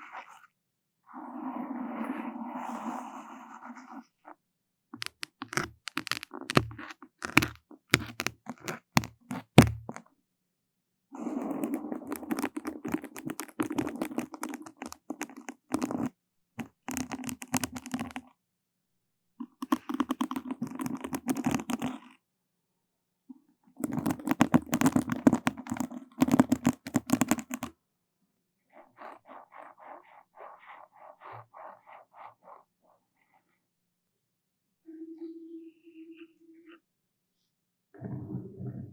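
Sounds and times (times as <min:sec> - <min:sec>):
crackling and scraping on microphone: 0:01.2 - 0:04.4, 0:05.0 - 0:10.1, 0:11.2 - 0:18.3, 0:19.4 - 0:22.2, 0:23.8 - 0:27.7, 0:28.7 - 0:33.6, 0:38.0 - 0:38.9.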